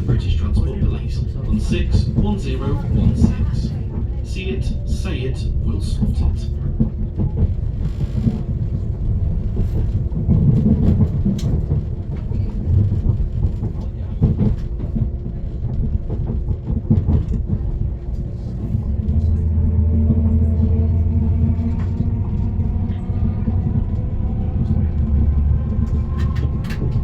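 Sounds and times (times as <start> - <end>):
train wheels rumbling on rail: 0.0 - 27.0
low drone: 17.7 - 27.0.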